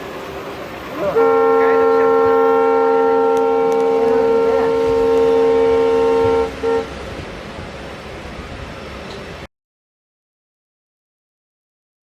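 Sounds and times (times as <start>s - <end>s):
locomotive horn blasts: 1.0s - 7.1s.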